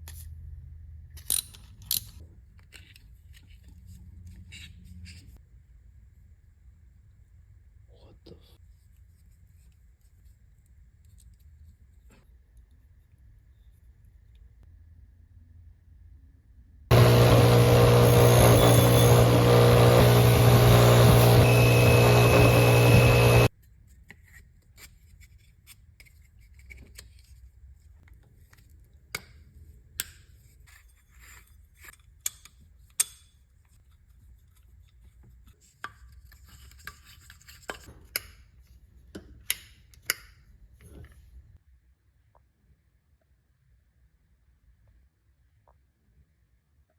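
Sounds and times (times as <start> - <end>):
metal parts clicking and scraping: 1.2 - 3.6
electric motor running: 16.9 - 23.5.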